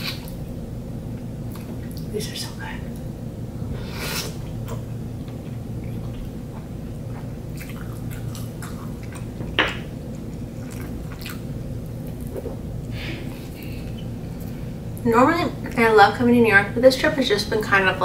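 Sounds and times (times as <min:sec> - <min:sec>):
chewing with squishy sounds: 0:04.3 - 0:15.0.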